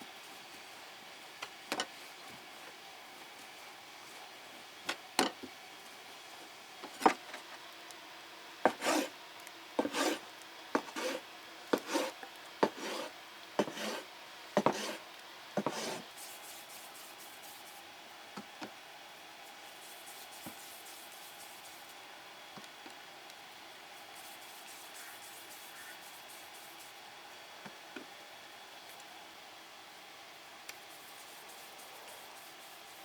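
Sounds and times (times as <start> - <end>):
short scraping strokes: 8.7 - 9.1, 9.8 - 10.2, 10.8 - 11.2, 11.8 - 15.0.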